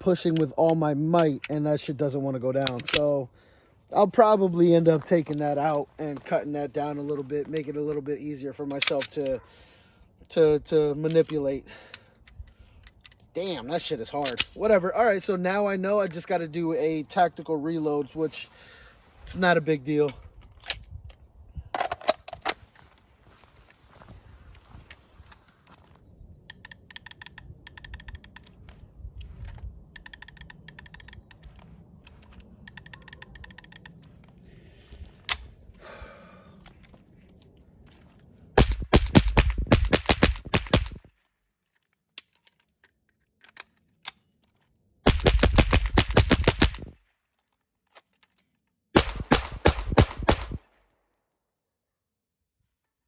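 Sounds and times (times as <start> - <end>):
gun handling clicks and rattles: 0.1 - 1.8, 2.5 - 3.2, 8.6 - 9.4, 11.0 - 13.4, 14.1 - 14.6, 20.0 - 22.8, 24.8 - 34.4, 35.0 - 35.6, 36.6 - 51.0
gunshots in fast strings: 45.1 - 46.9, 49.0 - 50.6.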